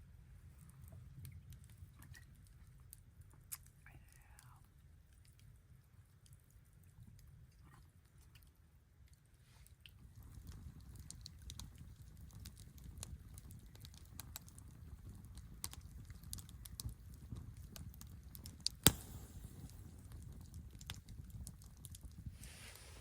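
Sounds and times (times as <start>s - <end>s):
campfire crackling: 9.2s - 23.0s
loud wood pop: 18.8s - 20.0s.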